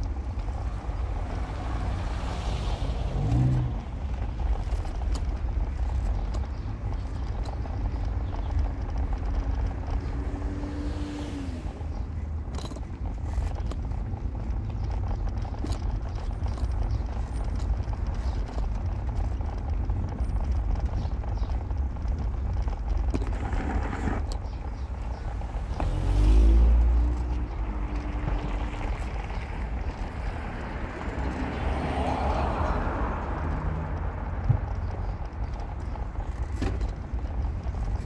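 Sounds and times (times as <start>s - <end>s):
car engine and road rumble: 0.0s - 38.0s
engine surging with rising pitch: 0.4s - 4.5s, 9.6s - 12.1s, 25.2s - 36.0s.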